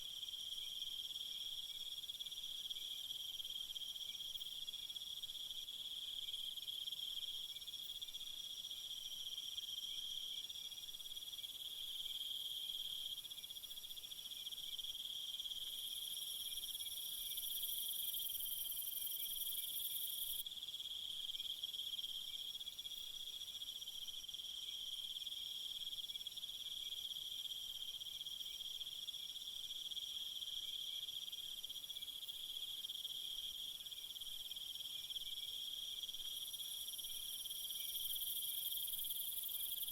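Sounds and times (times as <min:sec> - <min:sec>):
shrill insect chorus: 0:34.0 - 0:39.9.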